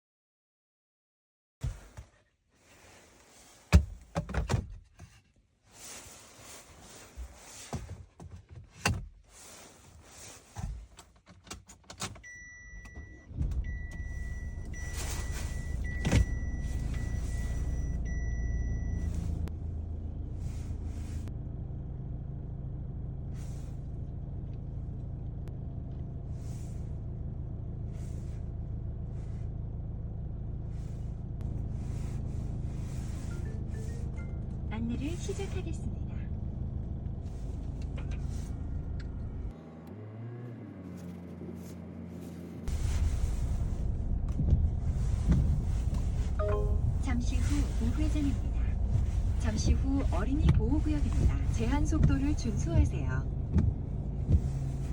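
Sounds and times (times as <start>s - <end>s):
car engine starting and idling: 8.9s - 54.9s
car warning chime beeping: 12.2s - 19.5s, 46.4s - 47.5s.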